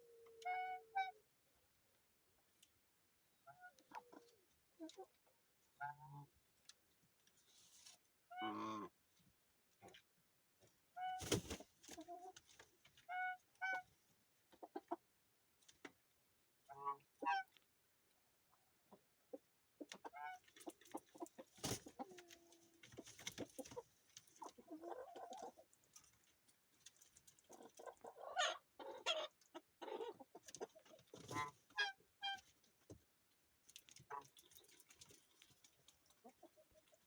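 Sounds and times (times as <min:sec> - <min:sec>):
chickens clucking: 0:03.5 - 0:05.3, 0:13.2 - 0:15.1, 0:18.8 - 0:26.2, 0:27.2 - 0:32.5, 0:35.9 - 0:37.0.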